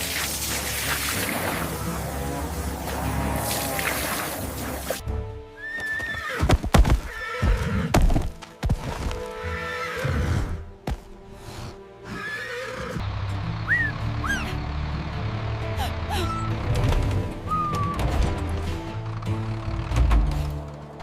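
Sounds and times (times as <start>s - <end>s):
background music: 0.0s - 21.0s
horse neighing: 5.6s - 7.9s, 9.4s - 10.6s, 12.0s - 13.0s.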